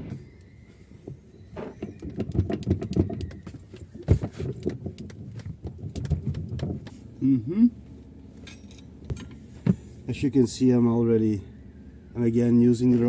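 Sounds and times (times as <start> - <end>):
objects knocking and clattering: 1.0 - 7.0.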